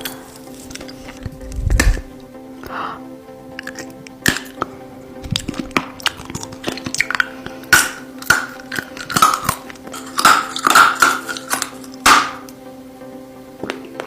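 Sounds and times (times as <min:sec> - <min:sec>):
slurps: 0:03.6 - 0:04.6, 0:05.3 - 0:12.0
wet clicks and smacks of licking: 0:05.4 - 0:09.7.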